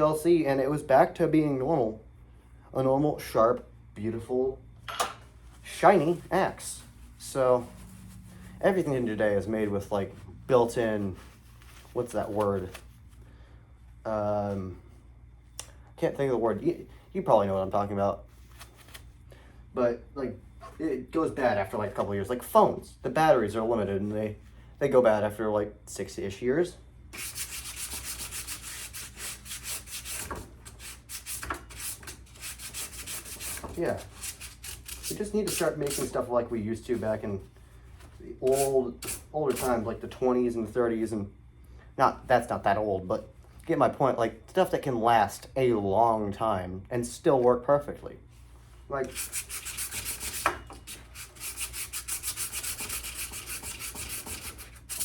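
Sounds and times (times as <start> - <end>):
sandpaper scratching on metal: 27.2 - 36.2, 38.4 - 39.8, 49.1 - 55.0.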